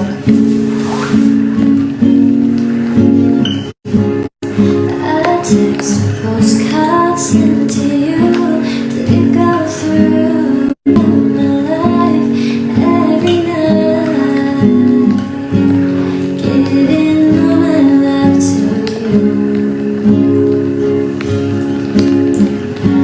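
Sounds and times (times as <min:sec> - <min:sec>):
acoustic guitar music: 0:00.0 - 0:23.0.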